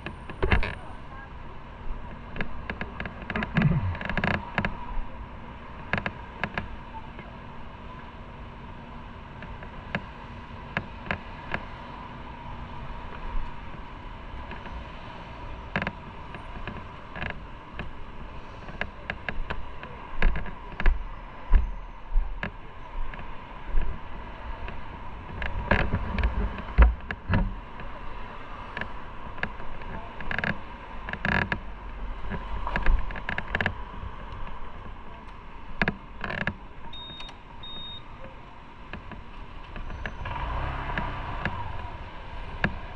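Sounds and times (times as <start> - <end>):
clicks knocks and creaks: 0.0 - 0.8, 2.1 - 4.8, 5.9 - 7.3, 9.4 - 10.1, 10.7 - 11.7, 14.5 - 14.8, 15.7 - 18.0, 18.6 - 21.8, 22.4 - 24.0, 24.6 - 27.9, 28.7 - 37.4, 38.2 - 41.9, 42.5 - 42.9
steady noise bed: 0.0 - 42.9
low thuds: 3.3 - 4.4.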